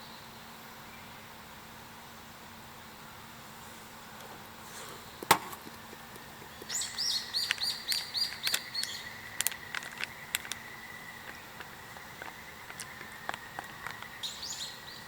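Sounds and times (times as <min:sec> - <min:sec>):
sharp clicks: 0:06.2 - 0:14.1
bird chirping: 0:06.2 - 0:15.0.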